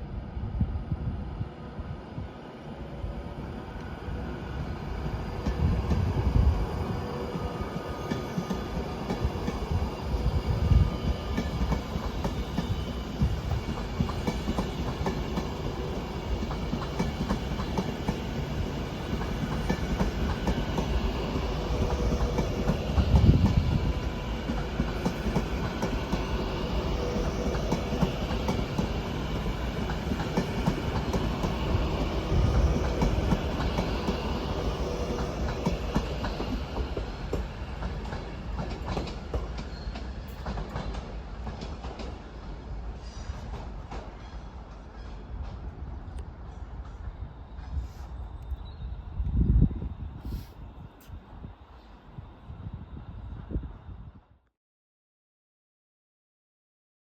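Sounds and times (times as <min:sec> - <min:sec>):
train rumbling past: 0:00.0 - 0:54.3.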